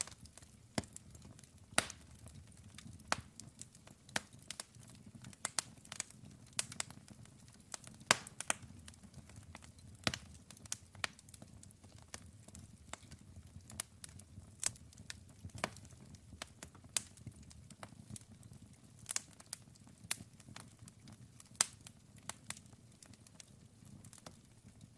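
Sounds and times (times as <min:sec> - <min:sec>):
wood fire crackling and popping: 0:00.0 - 0:24.9.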